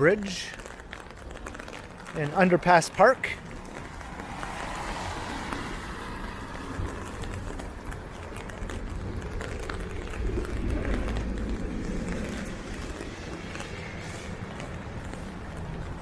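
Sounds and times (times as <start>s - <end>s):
background traffic: 0.0s - 16.0s
rain pattering on umbrella: 0.0s - 16.0s
low rumble: 3.5s - 16.0s.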